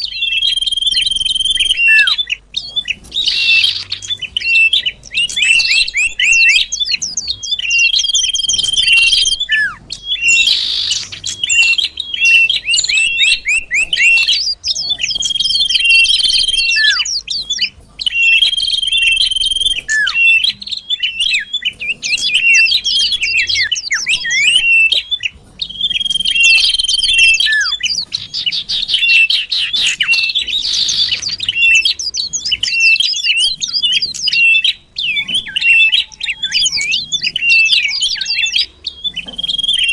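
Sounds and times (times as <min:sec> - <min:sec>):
bird song chirps and whistles: 0:00.0 - 0:39.9.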